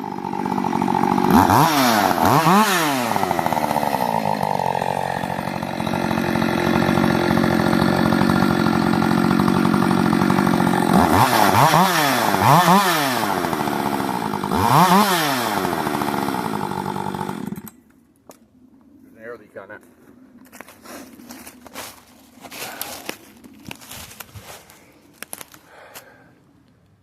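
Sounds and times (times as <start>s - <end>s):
chainsaw engine idling and revving: 0.0s - 17.8s.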